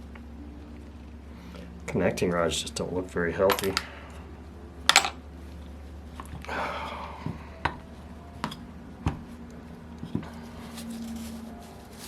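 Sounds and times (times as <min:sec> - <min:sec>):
metal parts clicking on workbench: 0:04.9 - 0:05.2.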